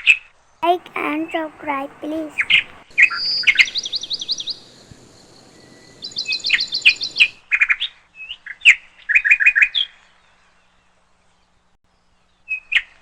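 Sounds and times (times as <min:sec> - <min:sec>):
lovebirds chirping: 0:00.6 - 0:07.4.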